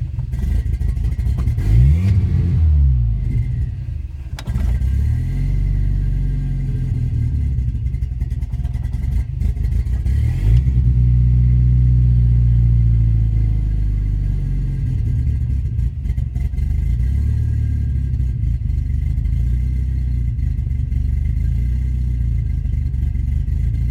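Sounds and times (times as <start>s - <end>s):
car engine revving: 0.0s - 23.9s.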